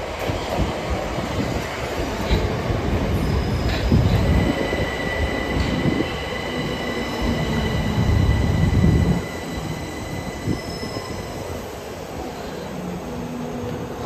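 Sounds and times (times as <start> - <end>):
train wheels rumbling on rail: 0.0 - 14.0
high-pitched train whine: 1.8 - 14.0.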